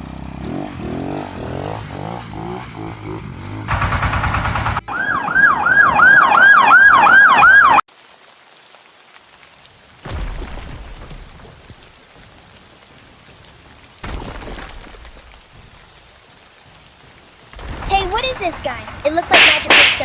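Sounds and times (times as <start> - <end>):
loud buzzing blast: 3.7 - 4.9, 17.6 - 20.0
cartoon police siren wailing: 4.8 - 7.8.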